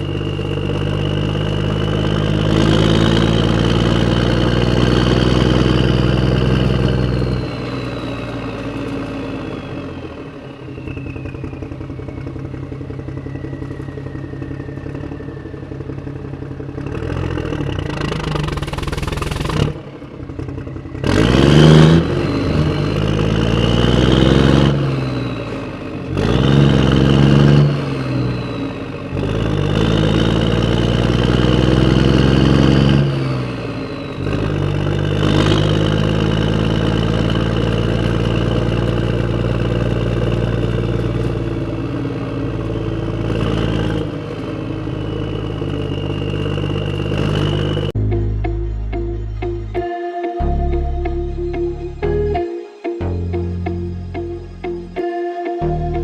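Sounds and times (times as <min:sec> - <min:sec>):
tractor engine idling and revving: 0:00.0 - 0:56.0.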